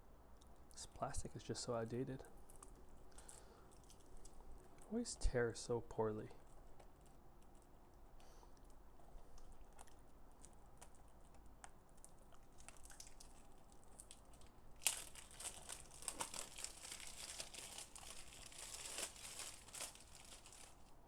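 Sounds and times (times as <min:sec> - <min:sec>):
plastic shrink-wrap tearing: 0:11.9 - 0:21.0.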